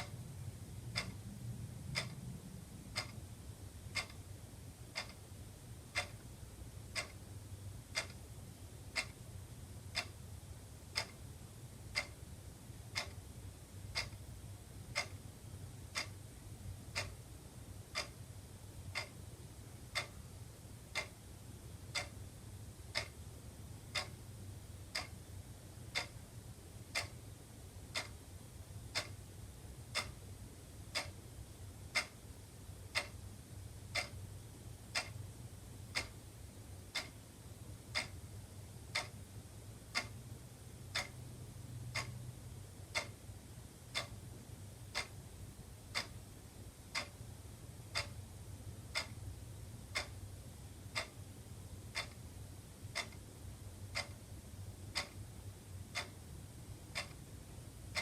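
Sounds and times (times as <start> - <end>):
low steady hum: 0.0 - 58.0
wall clock ticking: 0.0 - 58.0.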